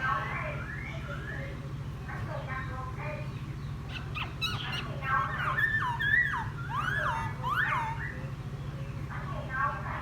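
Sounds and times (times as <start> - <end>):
bird singing whistled song: 3.9 - 8.3.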